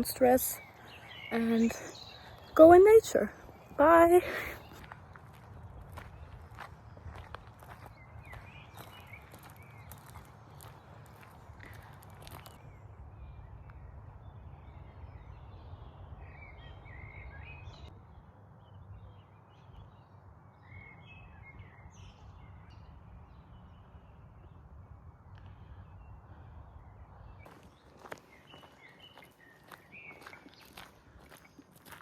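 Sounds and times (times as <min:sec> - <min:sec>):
birds chirping: 0:00.0 - 0:12.6, 0:27.2 - 0:32.0.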